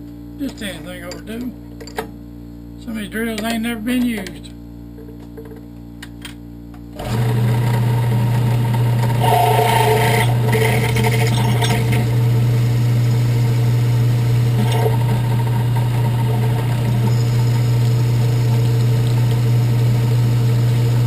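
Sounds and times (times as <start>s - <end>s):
drill bit cutting into aluminum: 7.0s - 21.0s
electric drill motor running: 7.0s - 21.0s.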